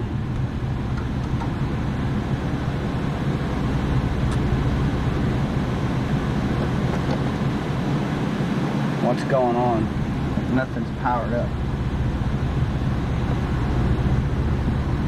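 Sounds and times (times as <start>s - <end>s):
even hum: 0.0s - 15.0s.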